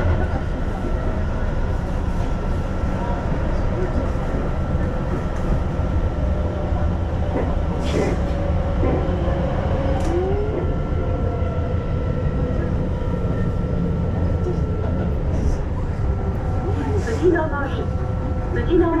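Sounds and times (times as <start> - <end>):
train rumble inside carriage: 0.0 - 19.0.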